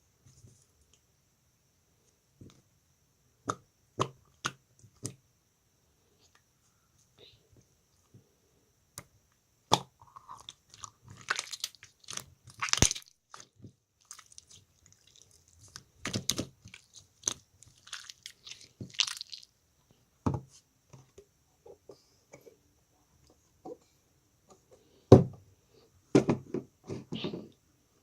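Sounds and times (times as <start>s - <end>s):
slime squished by hand: 9.7s - 19.5s.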